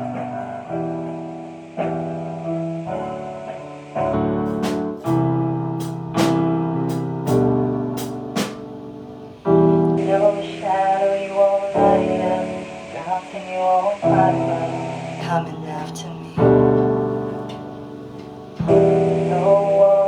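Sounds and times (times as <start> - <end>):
sustained keyboard chords: 0.0 - 13.1, 14.0 - 20.0
sharp drum hits: 4.5 - 8.8.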